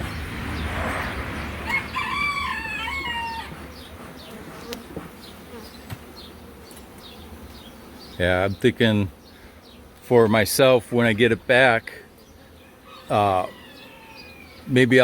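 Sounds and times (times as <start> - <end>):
honeybees buzzing: 0.0 - 15.0
rooster crowing: 1.6 - 3.7, 12.6 - 14.6.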